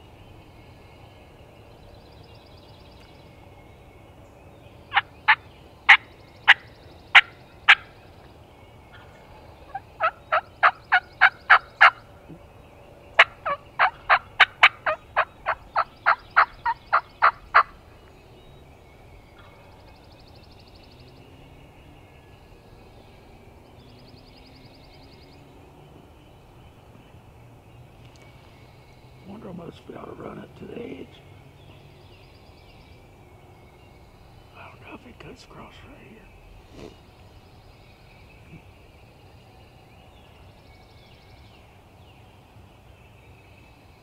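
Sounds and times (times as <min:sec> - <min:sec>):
wild turkey yelping: 0:04.9 - 0:07.9, 0:08.9 - 0:12.4, 0:13.2 - 0:17.8.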